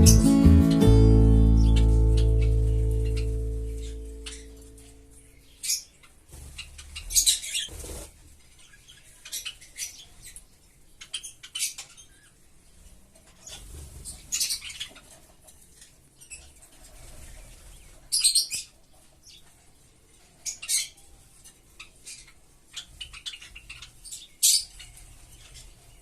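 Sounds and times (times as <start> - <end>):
birds chirping: 0.0 - 5.9
wing flutters: 7.5 - 8.1.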